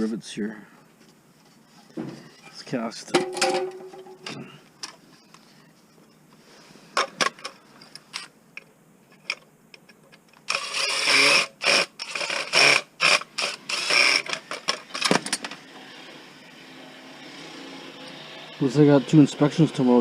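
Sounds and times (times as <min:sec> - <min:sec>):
power drill bursts: 0:10.5 - 0:20.0.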